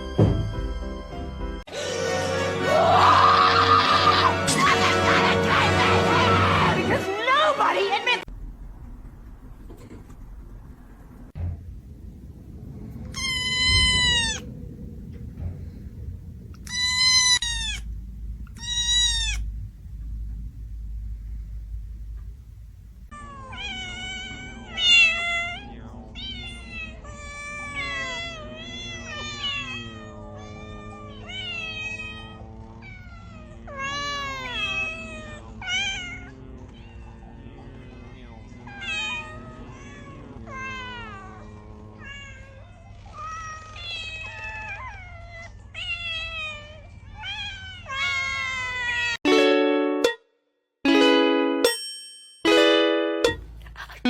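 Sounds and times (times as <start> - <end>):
low hum: 8.2 - 23.5
cat meowing: 13.1 - 14.5, 16.6 - 19.5, 23.1 - 37.3, 38.6 - 49.2.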